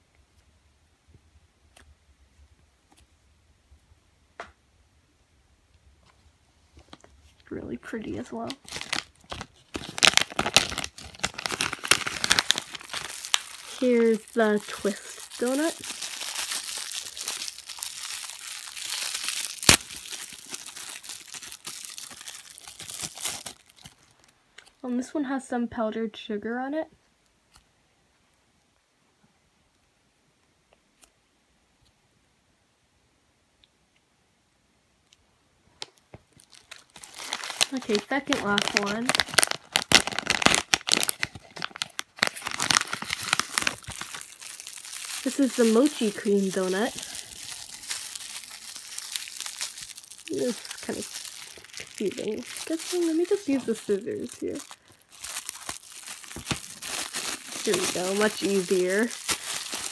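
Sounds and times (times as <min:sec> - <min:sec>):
crinkly plastic packaging handled: 0:06.0 - 0:24.8, 0:35.8 - 0:59.9.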